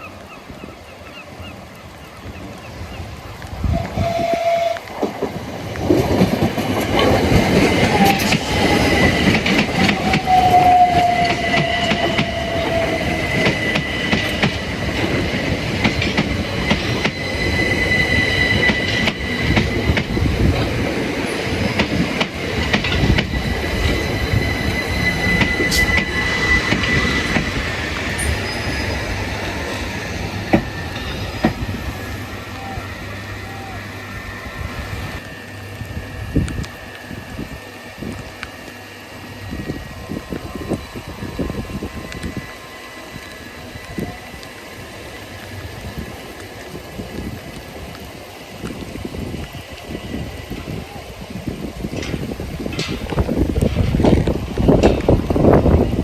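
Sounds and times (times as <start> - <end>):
train wheels clattering over rails: 4.4 - 32.5, 45.3 - 56.0
high wheel squeal: 6.9 - 46.4.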